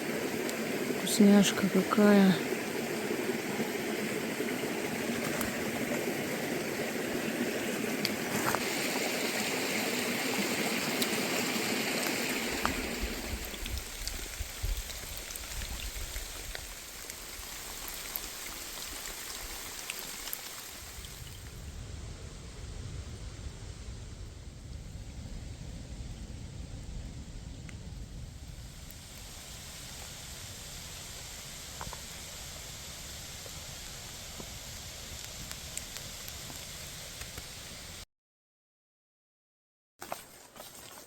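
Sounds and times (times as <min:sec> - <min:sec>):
heavy rain pouring: 0:00.0 - 0:38.0
low rumble: 0:20.9 - 0:31.4.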